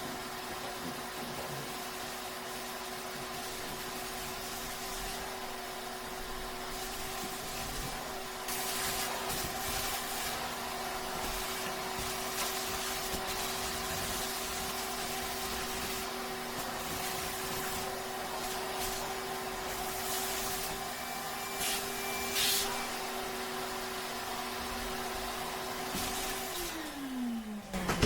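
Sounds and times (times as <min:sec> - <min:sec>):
hiss: 0:08.5 - 0:10.4.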